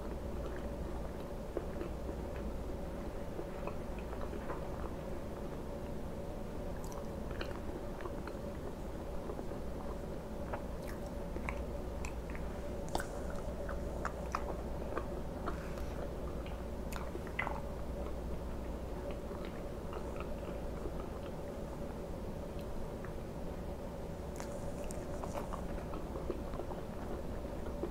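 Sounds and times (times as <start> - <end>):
steady low hum: 0.0 - 27.9
biting and chewing food: 6.8 - 18.2, 24.3 - 27.9.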